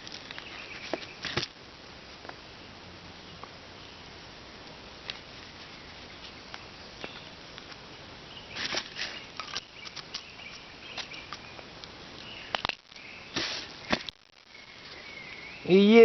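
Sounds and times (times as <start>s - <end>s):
steady background hiss: 0.0s - 16.0s
rustling of items being packed: 8.5s - 11.4s, 12.6s - 14.2s.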